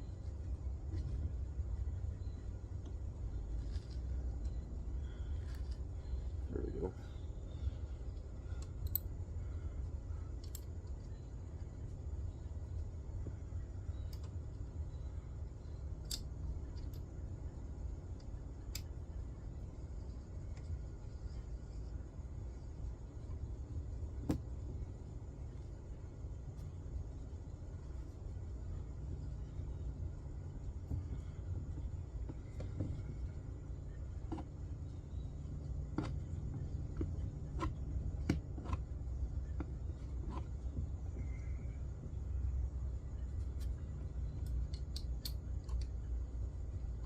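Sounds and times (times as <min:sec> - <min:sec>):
low steady rumble: 0:00.0 - 0:47.0
sharp light clicks: 0:08.6 - 0:09.2, 0:16.0 - 0:17.1, 0:18.2 - 0:19.0, 0:44.4 - 0:45.9.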